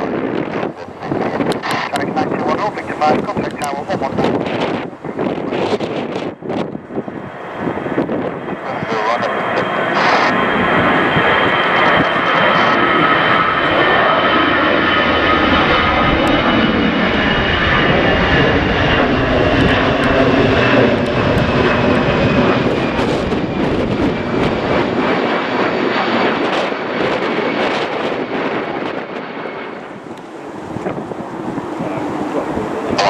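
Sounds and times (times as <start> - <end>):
jet engines rumbling and whining: 0.0 - 33.0
sharp crackles: 8.9 - 10.4.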